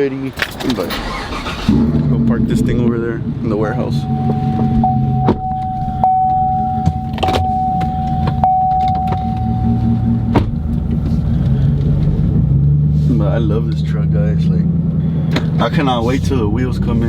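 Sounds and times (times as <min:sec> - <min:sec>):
truck engine idling: 0:01.0 - 0:11.8
high whine: 0:02.4 - 0:11.0.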